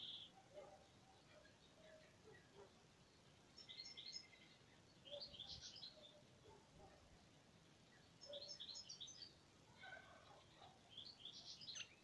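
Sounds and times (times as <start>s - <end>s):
faint steady background hiss: 0.0s - 12.0s
high chirping birdsong: 0.0s - 12.0s.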